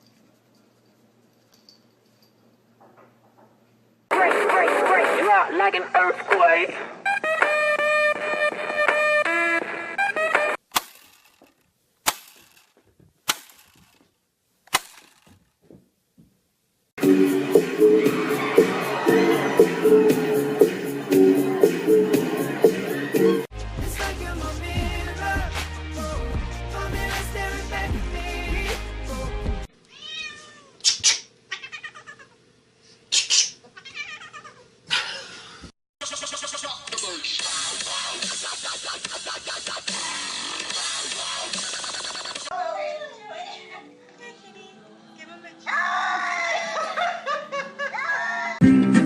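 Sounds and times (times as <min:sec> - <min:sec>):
music: 0:04.1 - 0:05.4, 0:07.1 - 0:10.6, 0:17.0 - 0:29.7, 0:43.1 - 0:47.5, 0:48.6 - 0:49.0
cat meowing: 0:29.9 - 0:30.8, 0:31.5 - 0:32.3, 0:33.8 - 0:34.6.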